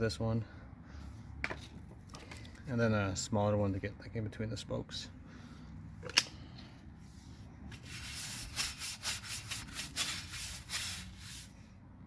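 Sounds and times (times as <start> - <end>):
stiff brush scrubbing car wheel: 7.7 - 11.6.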